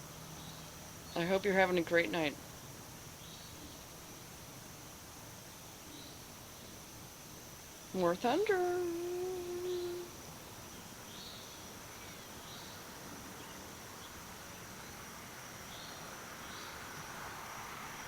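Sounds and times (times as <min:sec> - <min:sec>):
high-pitched insect trill: 0:00.0 - 0:18.0
low background hum: 0:07.8 - 0:10.5.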